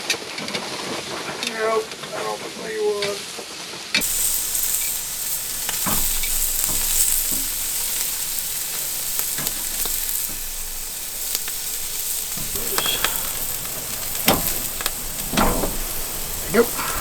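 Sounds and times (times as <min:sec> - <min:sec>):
food sizzling on a grill: 0:00.6 - 0:17.0.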